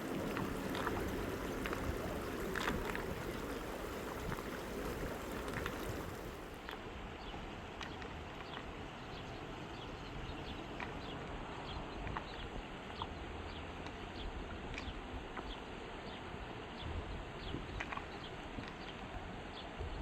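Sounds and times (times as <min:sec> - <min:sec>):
river flowing: 0:00.0 - 0:07.0.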